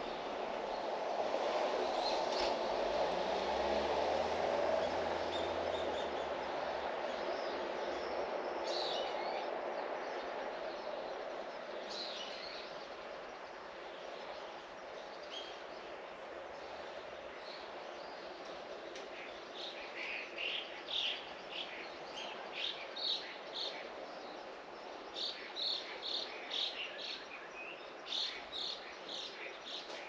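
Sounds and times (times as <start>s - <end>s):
passing vehicle rumble: 0.2s - 7.4s.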